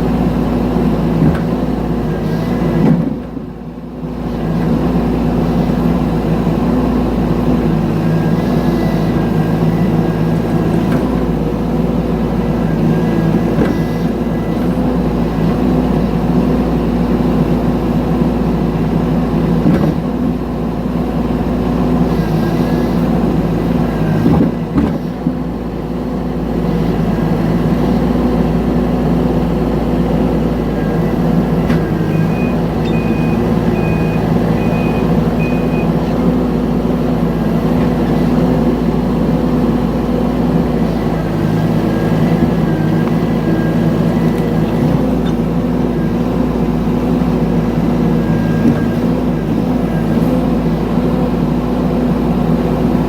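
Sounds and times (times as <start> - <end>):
excavator engine running: 0.0 - 53.0
short high beeps: 32.1 - 36.0.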